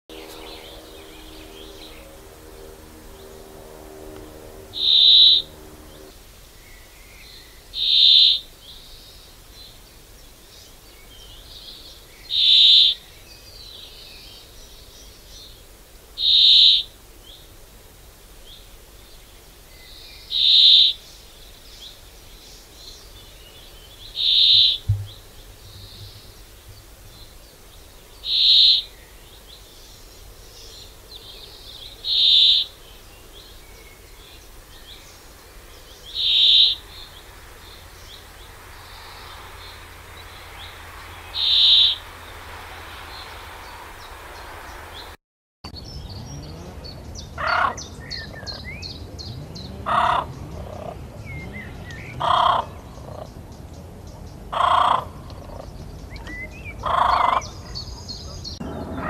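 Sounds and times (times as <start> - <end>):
loud high bird call: 0.1 - 6.2, 7.8 - 8.5, 16.2 - 16.9, 36.0 - 45.2
small birds chirping: 0.1 - 17.5, 18.4 - 59.0
repeating bird call: 3.8 - 6.1, 36.2 - 36.8, 41.3 - 42.0.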